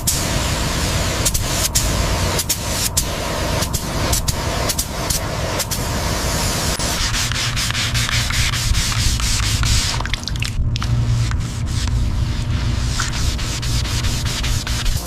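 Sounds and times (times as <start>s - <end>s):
steady low hum: 0.0s - 15.0s
sanding strokes: 6.8s - 10.1s, 11.0s - 15.0s.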